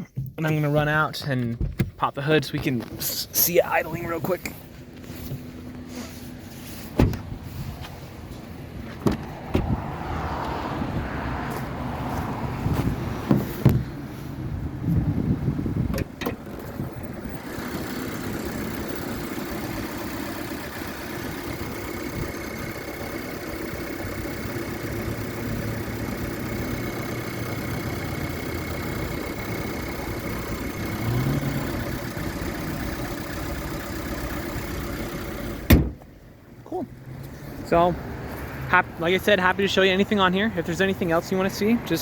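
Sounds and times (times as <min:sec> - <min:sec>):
car engine idling: 0:00.0 - 0:10.1, 0:11.5 - 0:42.0
sharp knocks and clunks: 0:01.4 - 0:02.8, 0:07.0 - 0:07.4, 0:08.9 - 0:09.8, 0:13.2 - 0:14.0, 0:35.6 - 0:36.1.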